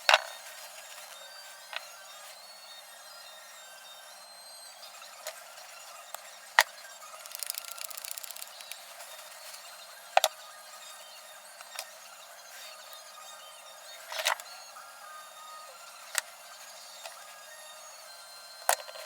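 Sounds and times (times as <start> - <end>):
rapid evenly spaced clicks: 7.2 - 8.8.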